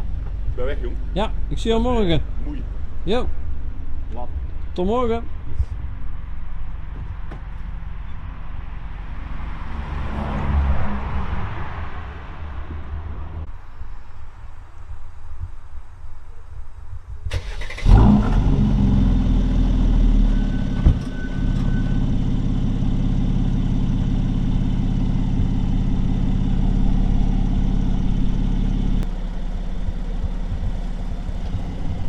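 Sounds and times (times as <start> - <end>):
car engine idling: 13.1 - 32.0
car engine starting and revving: 17.2 - 32.0.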